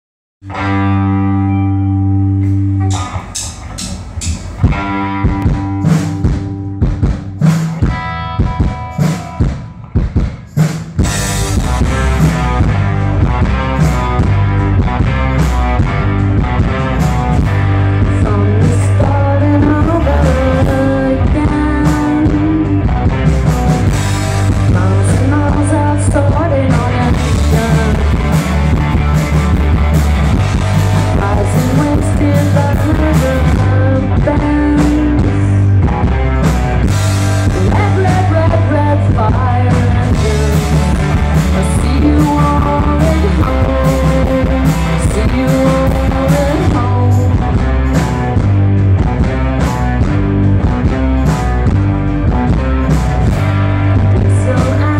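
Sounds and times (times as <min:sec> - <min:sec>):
band with guitar and drums: 0:00.4 - 0:54.9
person singing: 0:18.0 - 0:23.1, 0:24.6 - 0:28.7, 0:31.0 - 0:35.7, 0:37.4 - 0:47.6, 0:54.1 - 0:54.9.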